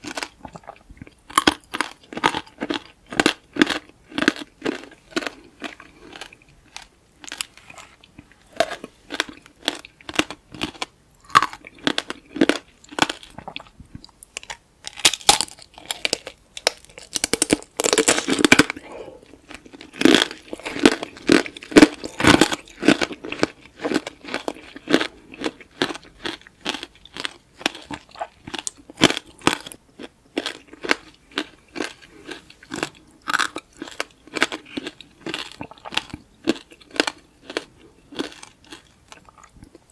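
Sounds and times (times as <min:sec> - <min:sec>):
crunchy candy shell cracking: 0:14.3 - 0:18.8.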